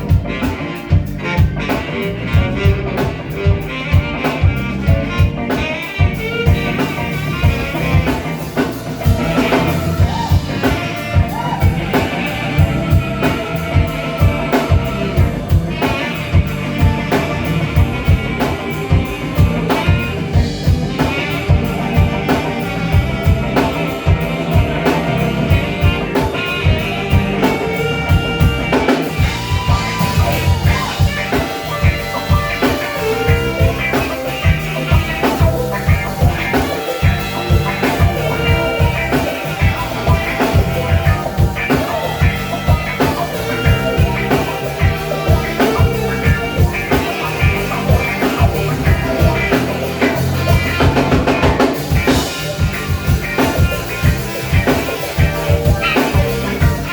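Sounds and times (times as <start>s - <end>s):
live blues-rock band playing: 0.0s - 56.9s.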